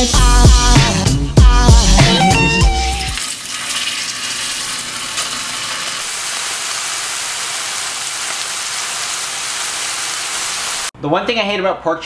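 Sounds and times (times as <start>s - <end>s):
meat sizzling in a skillet: 3.2s - 10.9s.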